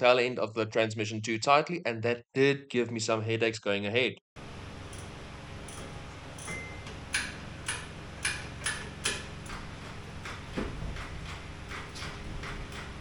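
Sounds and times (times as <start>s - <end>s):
low hum: 4.4s - 13.0s
sharp metallic clicks: 4.9s - 10.4s.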